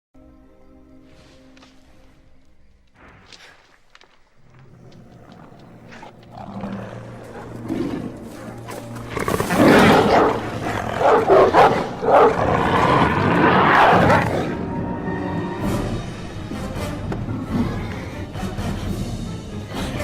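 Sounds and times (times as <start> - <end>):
rough growling and roaring: 4.4 - 15.0
low music drone: 5.3 - 20.0.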